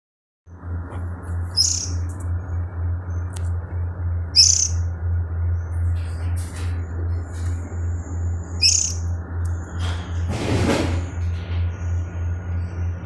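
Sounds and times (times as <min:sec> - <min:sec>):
steady low hum: 0:00.5 - 0:13.0
baby bird chirping: 0:01.4 - 0:02.1, 0:04.3 - 0:04.9, 0:08.5 - 0:09.1.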